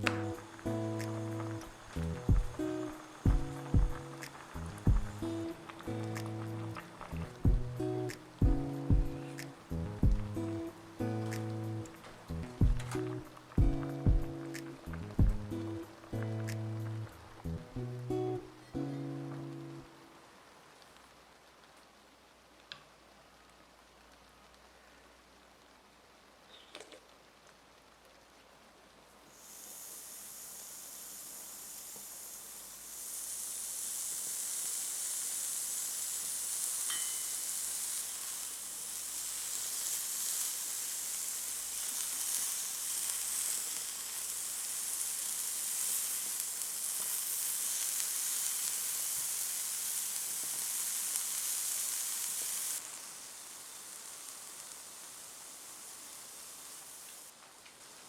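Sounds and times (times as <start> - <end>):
food sizzling in hot oil: 0.0 - 20.0, 29.3 - 58.0
light clink: 36.9 - 37.6.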